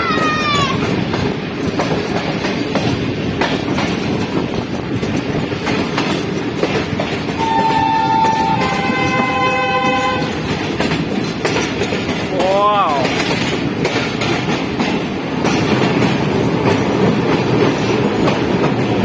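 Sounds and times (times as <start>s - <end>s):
train wheels clickety-clack: 0.0s - 19.0s
locomotive horn blast: 7.4s - 10.5s.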